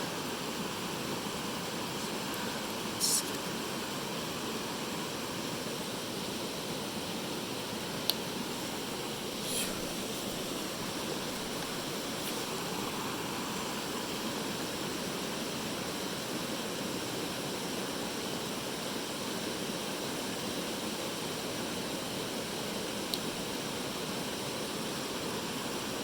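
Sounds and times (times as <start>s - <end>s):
mountain stream rushing: 7.8s - 15.2s.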